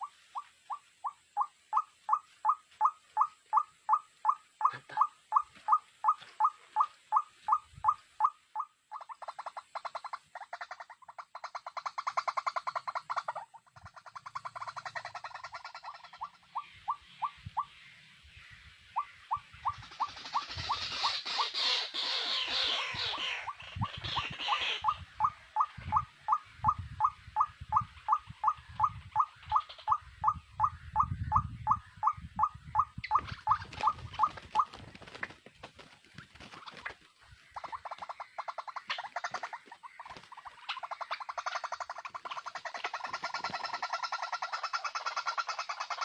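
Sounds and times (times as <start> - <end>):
small animal calling: 0.0 - 17.7, 18.9 - 46.0.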